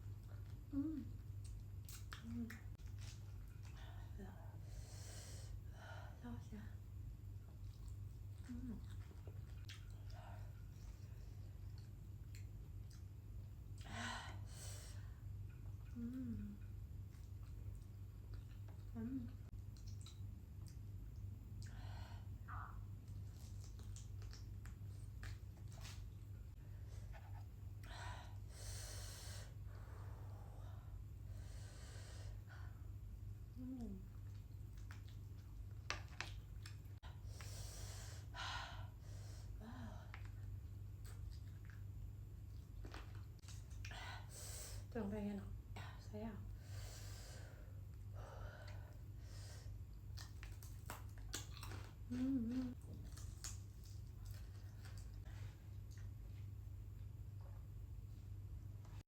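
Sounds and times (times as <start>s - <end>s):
steady low hum: 0.0s - 59.0s
person humming: 0.7s - 1.1s, 8.5s - 8.8s, 15.9s - 16.6s, 18.9s - 19.4s, 52.1s - 52.8s
chewing fried chicken: 7.4s - 13.6s, 16.6s - 18.9s, 19.5s - 21.7s, 23.0s - 26.4s, 34.1s - 37.0s, 40.2s - 43.9s, 49.9s - 56.6s.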